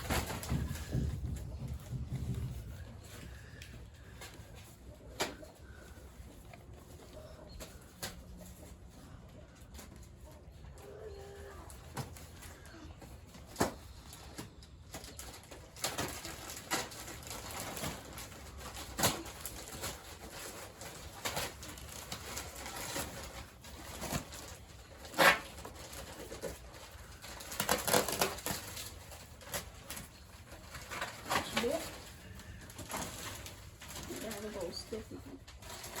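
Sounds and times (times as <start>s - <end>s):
bedding rustling: 0.0s - 7.8s, 15.3s - 36.0s.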